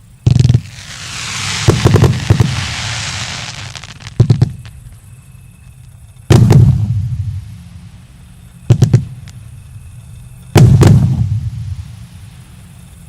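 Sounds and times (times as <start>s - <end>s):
firework bangs with rumbling echo: 0.3s - 4.7s, 6.3s - 7.4s, 10.5s - 12.0s.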